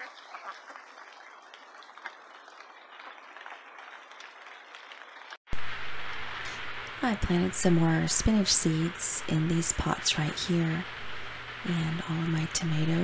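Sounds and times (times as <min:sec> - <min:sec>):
steady rain hiss: 0:02.6 - 0:13.0.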